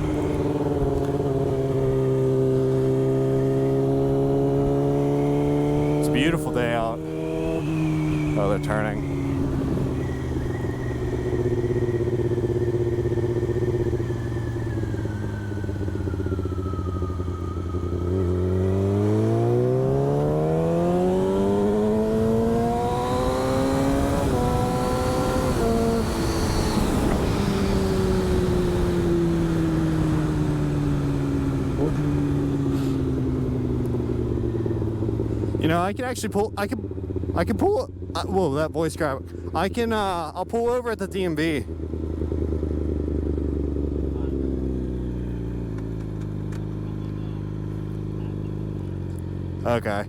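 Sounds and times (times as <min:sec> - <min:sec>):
motorcycle engine revving: 0:00.0 - 0:50.0
rushing wind noise: 0:22.6 - 0:30.7.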